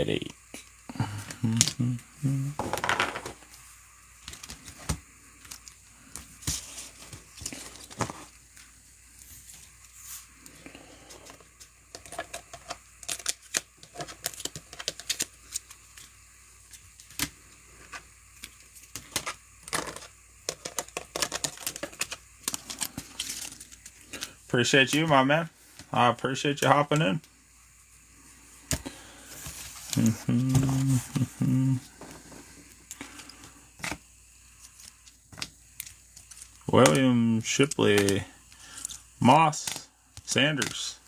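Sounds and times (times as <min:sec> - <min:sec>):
light rustling of cards: 0:04.2 - 0:27.3, 0:28.6 - 0:41.0
cards and plastic holders clicking: 0:11.2 - 0:16.1, 0:18.4 - 0:25.2, 0:34.8 - 0:40.9.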